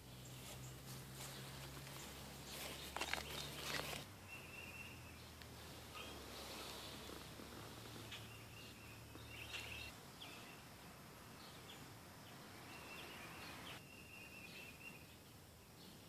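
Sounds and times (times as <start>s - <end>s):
birds chirping and trilling: 0.0s - 16.0s.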